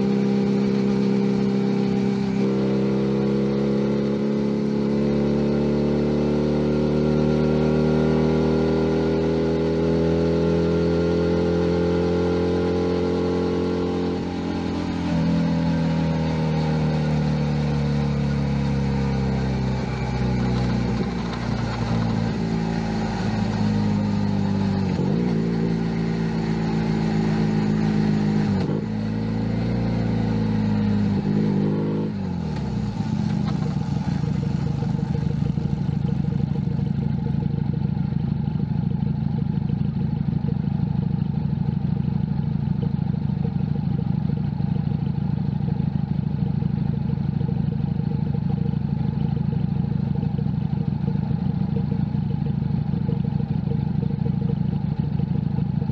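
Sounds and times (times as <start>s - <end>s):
motorcycle engine revving: 0.0s - 55.9s
motorcycle engine idling: 32.2s - 55.9s.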